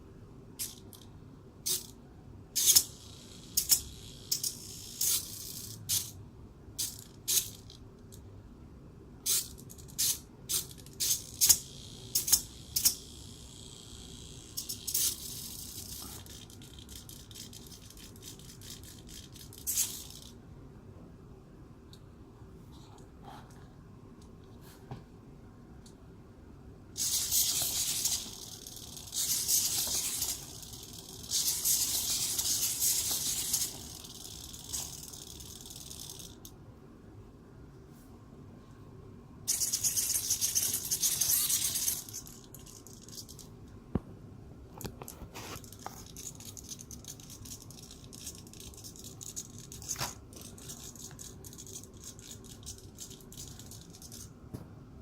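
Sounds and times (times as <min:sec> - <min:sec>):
servos whirring: 0:27.0 - 0:36.4.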